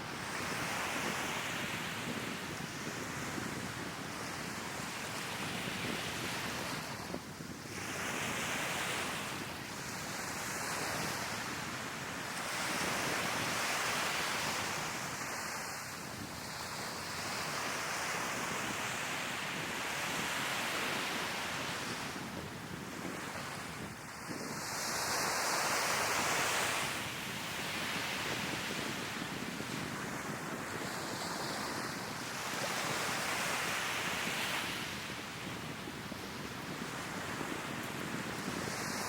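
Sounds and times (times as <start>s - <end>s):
wind buffeting microphone: 0.0s - 15.2s, 16.0s - 24.8s, 26.2s - 39.0s
sea waves breaking on shore: 0.0s - 39.0s.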